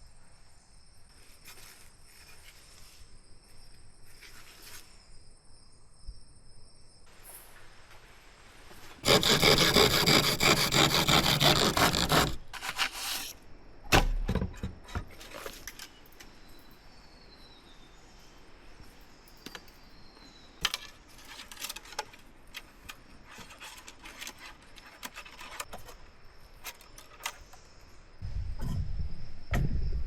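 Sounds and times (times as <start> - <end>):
bamboo clicking and scraping: 9.0 - 13.4, 20.6 - 27.8
insect drone: 25.4 - 30.0.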